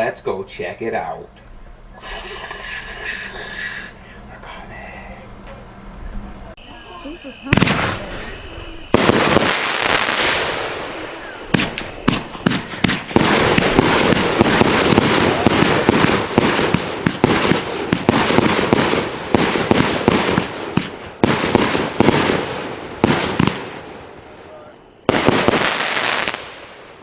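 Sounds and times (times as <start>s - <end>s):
firework bangs: 6.6s - 27.0s
firework hiss: 6.6s - 27.0s
fireworks crackling: 6.6s - 27.0s
sharp firework shots: 7.4s - 27.0s.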